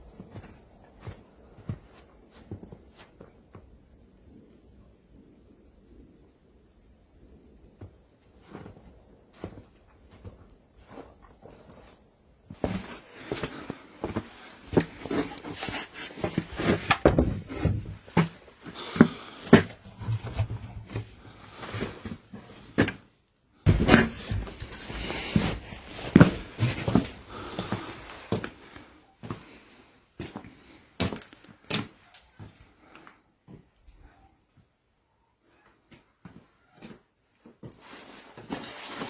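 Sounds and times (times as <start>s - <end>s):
knocks and clatter of objects handled: 12.6s - 23.0s, 23.7s - 27.2s.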